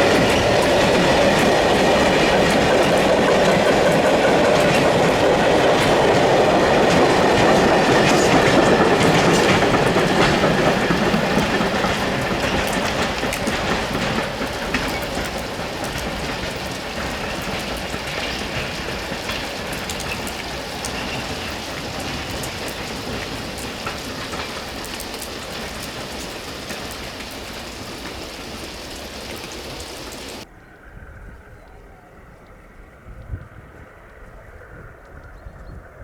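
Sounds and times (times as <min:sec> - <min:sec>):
train wagons rolling on track: 0:00.0 - 0:30.5.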